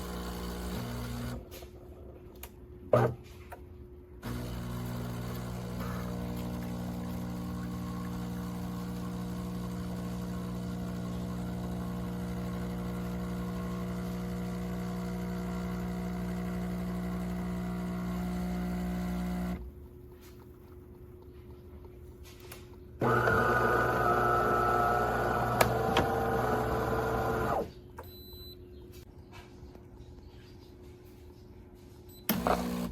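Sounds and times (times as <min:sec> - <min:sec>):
espresso machine humming: 0:00.0 - 0:01.4, 0:04.2 - 0:19.6, 0:23.0 - 0:27.7, 0:32.3 - 0:32.9.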